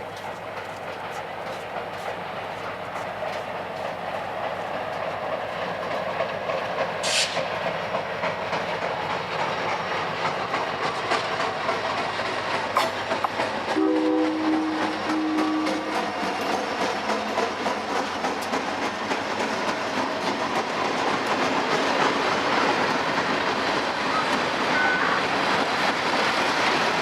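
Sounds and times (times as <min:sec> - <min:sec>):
freight train wheels clicking: 0:00.0 - 0:27.0
train horn chord: 0:13.8 - 0:16.0
high wheel squeal: 0:24.1 - 0:25.3.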